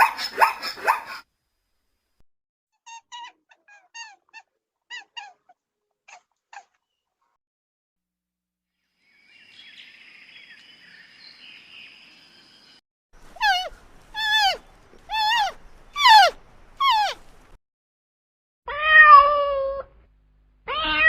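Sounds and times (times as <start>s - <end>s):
animal calling: 2.8s - 7.1s, 13.2s - 17.4s.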